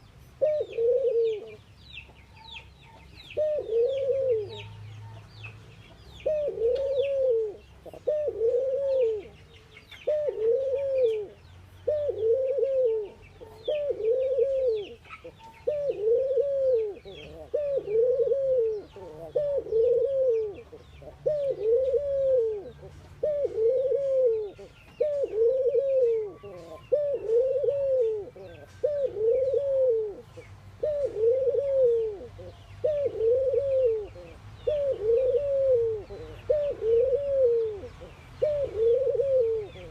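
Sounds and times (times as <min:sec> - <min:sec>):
doves cooing: 0:00.0 - 0:05.2, 0:06.2 - 0:39.9
small birds chirping: 0:00.0 - 0:39.9.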